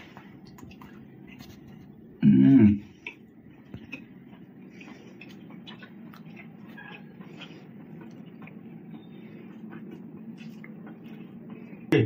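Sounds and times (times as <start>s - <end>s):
person chewing food: 0.0s - 11.9s
steady low hum: 0.0s - 12.0s
wet mouth clicks and smacks: 5.2s - 7.0s.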